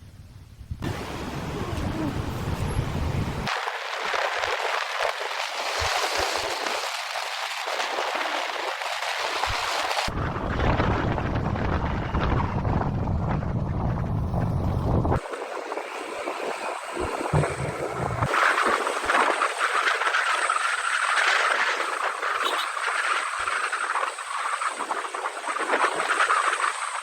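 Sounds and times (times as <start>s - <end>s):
waterfall rushing: 0.8s - 3.9s.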